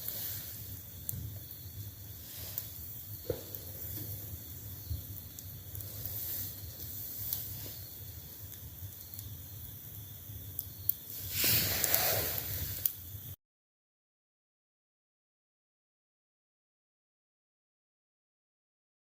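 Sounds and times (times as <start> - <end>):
campfire hissing and crackling: 0.0 - 13.4.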